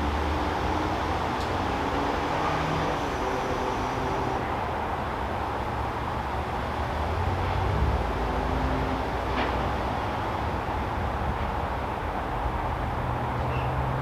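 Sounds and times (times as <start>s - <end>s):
distant road traffic rumble: 0.0s - 4.6s
faint engine hums: 0.0s - 4.8s.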